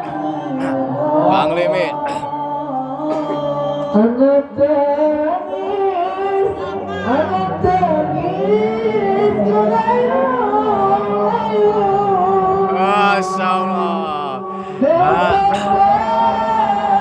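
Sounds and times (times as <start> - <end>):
man singing slow melody: 0.0 - 5.0, 10.4 - 17.0.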